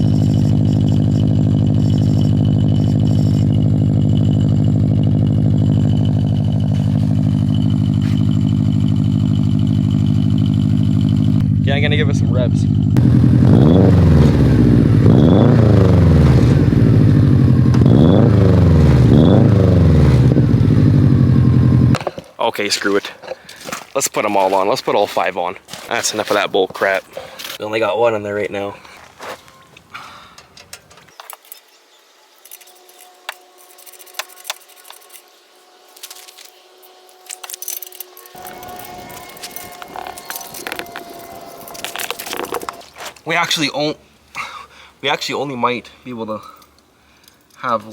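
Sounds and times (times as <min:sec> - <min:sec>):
engine revving: 0:00.0 - 0:22.0, 0:37.0 - 0:43.0
clicks and clinks of small parts: 0:30.4 - 0:31.8, 0:32.4 - 0:35.3, 0:35.9 - 0:43.2
thin high exhaust whistle: 0:32.0 - 0:43.1.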